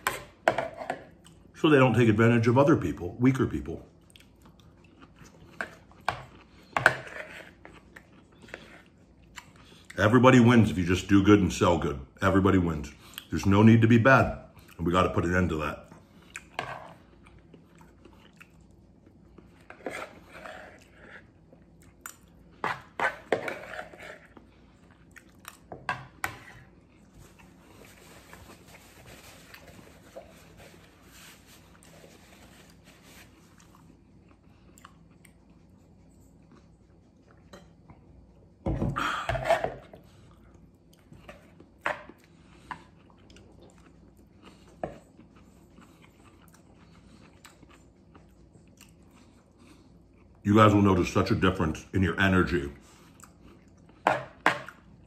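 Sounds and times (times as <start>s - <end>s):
man chewing: 4.0s - 10.0s, 15.9s - 38.5s, 39.8s - 50.4s, 52.8s - 54.0s
spoon scraping plastic bowl: 6.8s - 7.7s, 19.6s - 21.3s, 22.6s - 24.4s
paper towel rustling: 27.2s - 33.6s.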